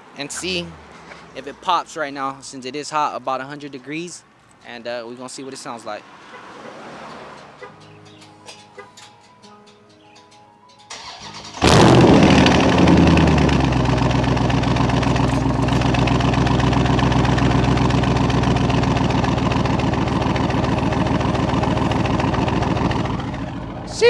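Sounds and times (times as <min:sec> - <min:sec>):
car engine starting and idling: 0:00.0 - 0:01.9, 0:10.9 - 0:24.0.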